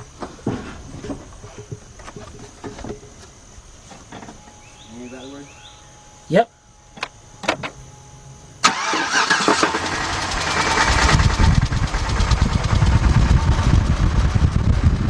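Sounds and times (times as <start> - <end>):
misfiring engine running rough: 8.6 - 15.0.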